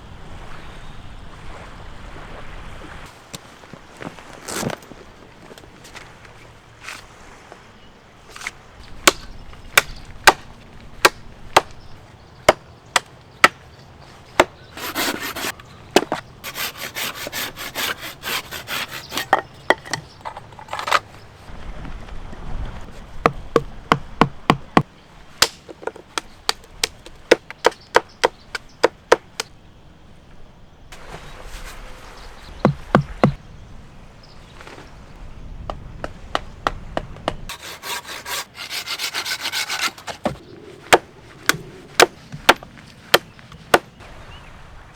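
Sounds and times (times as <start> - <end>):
tool knocking on wood: 14.4 - 21.0, 23.2 - 24.9, 32.6 - 33.4
rasping rubbing: 14.4 - 21.1, 37.5 - 43.9.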